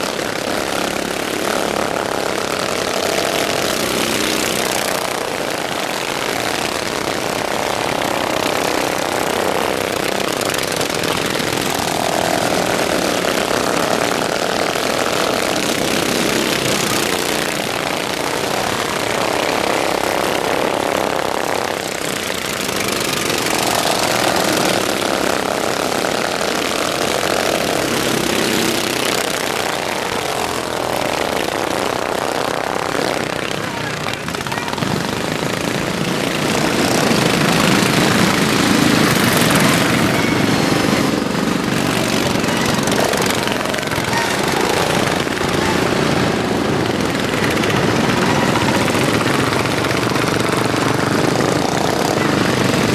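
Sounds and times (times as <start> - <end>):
lawnmower engines racing: 0.0 - 52.9.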